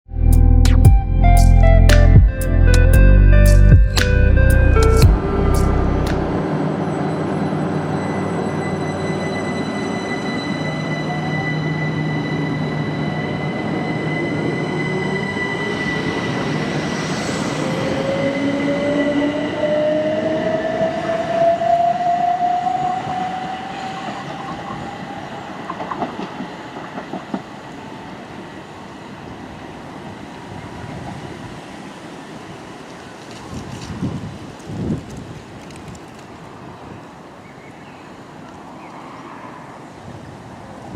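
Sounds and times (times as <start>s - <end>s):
rising whine: 0.1s - 24.4s
train passing on rails: 4.1s - 40.9s.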